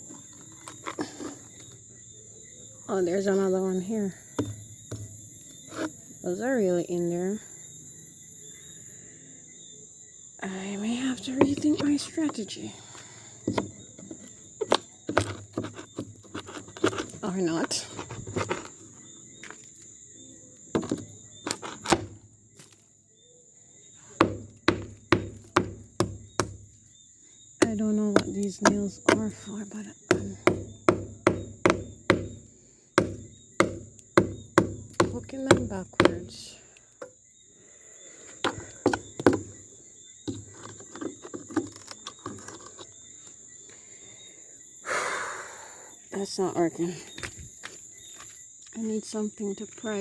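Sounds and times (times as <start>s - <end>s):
hammer claw scraping nails: 4.4s - 6.0s, 13.4s - 19.8s, 20.7s - 22.8s, 24.1s - 26.8s, 27.6s - 36.4s, 38.3s - 39.6s, 40.2s - 43.0s
hammer striking wooden boards: 24.2s - 26.7s, 30.1s - 32.4s, 33.0s - 36.3s, 38.4s - 39.6s.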